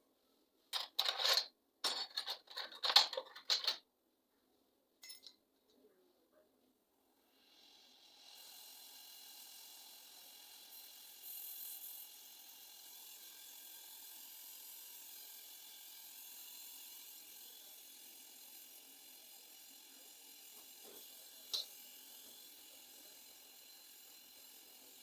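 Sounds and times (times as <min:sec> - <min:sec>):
pressurised gas hissing through tubing: 0:07.2 - 0:17.4.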